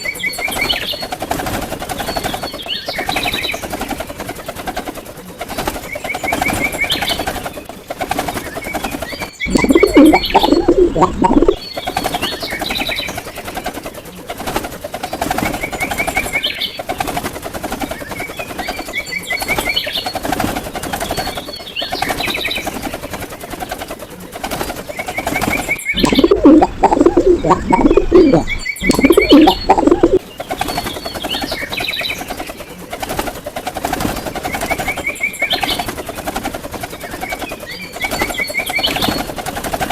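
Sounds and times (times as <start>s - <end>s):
high bird chirps: 9.4s - 11.8s, 25.9s - 30.2s.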